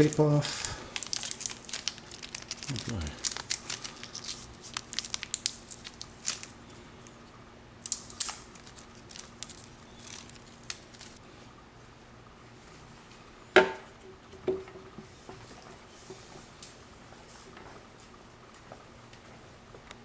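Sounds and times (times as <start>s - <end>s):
plastic packaging crinkling: 0.0s - 6.6s, 7.8s - 11.2s.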